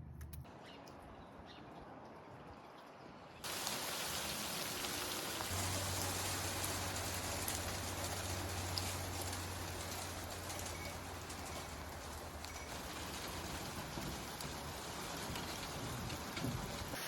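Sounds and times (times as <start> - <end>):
hail and rain pelting: 3.4 - 17.0.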